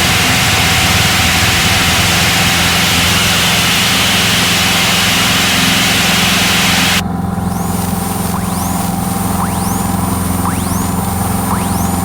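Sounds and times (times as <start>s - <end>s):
rushing air hiss: 0.0s - 9.3s
airplane engine drone: 0.0s - 12.0s.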